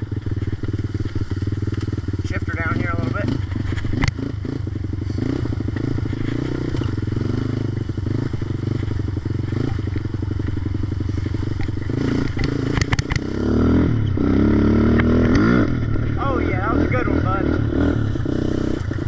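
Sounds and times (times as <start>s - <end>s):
atv engine running: 0.0s - 19.0s
sharp clacks: 11.5s - 13.4s.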